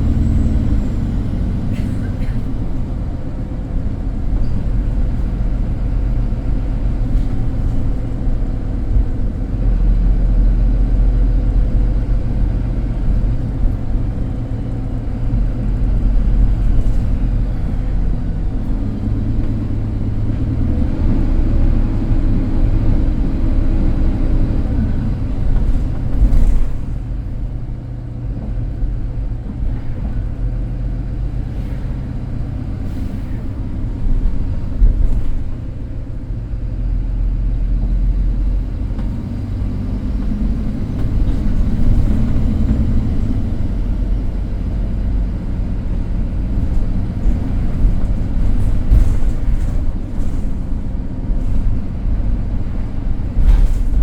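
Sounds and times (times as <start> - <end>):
engine whine: 0.0 - 36.6
bus diesel engine drone: 0.0 - 54.0
bus interior rattling: 0.0 - 54.0.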